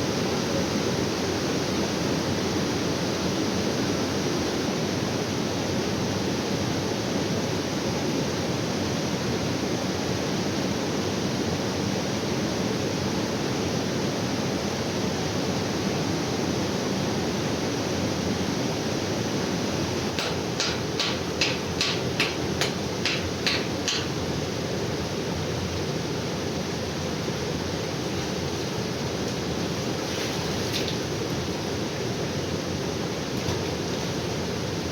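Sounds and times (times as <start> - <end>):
sharp taps: 20.2 - 24.2.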